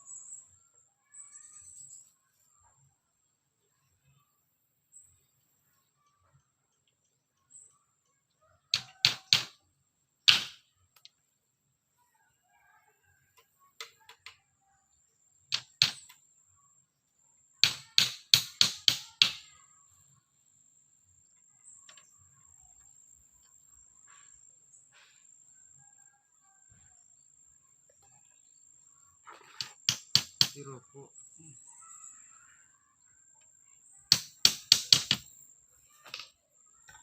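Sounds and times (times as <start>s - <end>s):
tool striking bamboo: 8.8s - 9.6s, 10.3s - 10.6s, 15.5s - 16.2s, 17.6s - 19.5s, 29.5s - 30.7s, 34.1s - 35.3s.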